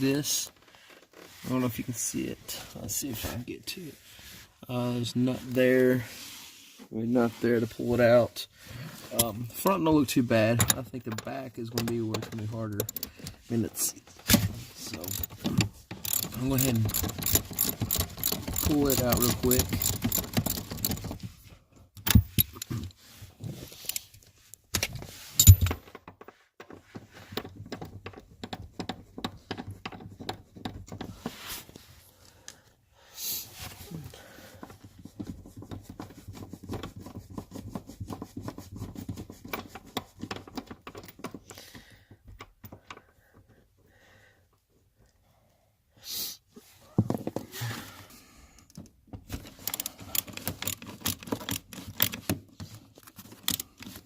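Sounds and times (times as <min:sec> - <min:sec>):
hand tools clanking on metal: 0:14.9 - 0:21.0.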